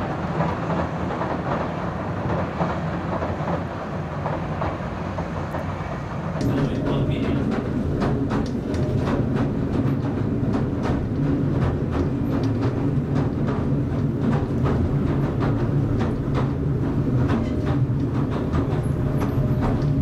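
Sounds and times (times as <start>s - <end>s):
train carriage hum: 0.0s - 20.0s
wheels clicking on track: 6.3s - 20.0s.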